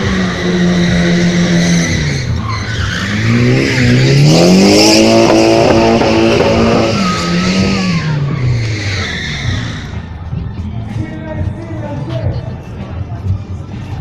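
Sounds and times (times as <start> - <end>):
tyres squealing and skidding: 0.0 - 10.3
car engine revving: 0.0 - 10.4.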